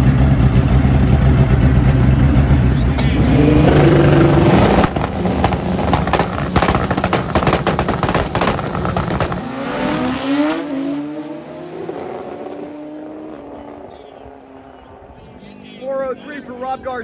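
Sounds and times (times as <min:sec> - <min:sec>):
drag motorcycle at full throttle: 0:00.0 - 0:16.7.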